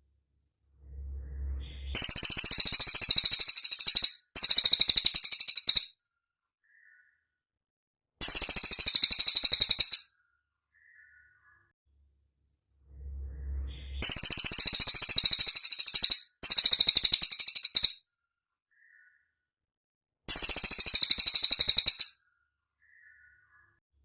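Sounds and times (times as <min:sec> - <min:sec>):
bird singing high trills: 0:00.8 - 0:05.9, 0:12.8 - 0:18.0, 0:20.3 - 0:22.2.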